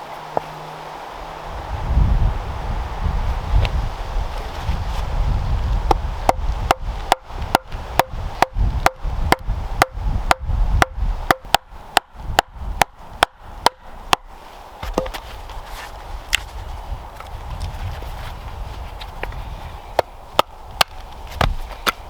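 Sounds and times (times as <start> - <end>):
wind rumble on microphone: 0.0 - 22.0
tool striking wood: 6.3 - 15.2.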